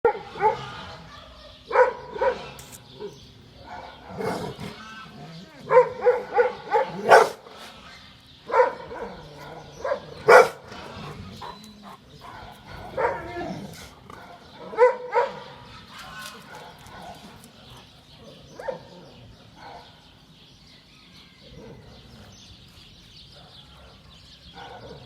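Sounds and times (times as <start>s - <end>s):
dogs barking: 0.0s - 20.2s, 23.3s - 25.0s.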